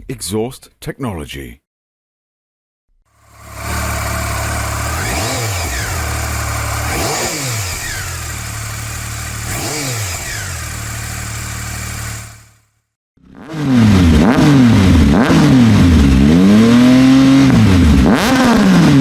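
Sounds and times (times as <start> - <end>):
motorcycle engine idling: 3.1 - 12.8
engine throttle blips: 3.2 - 12.5.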